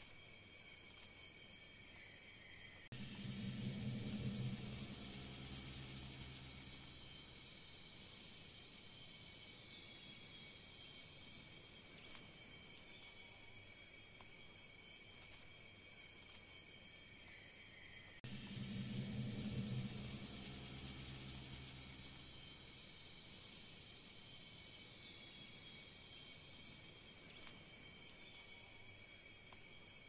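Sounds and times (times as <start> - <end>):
crickets chirping: 0.0 - 30.0
low hum: 2.9 - 8.3, 18.2 - 23.0.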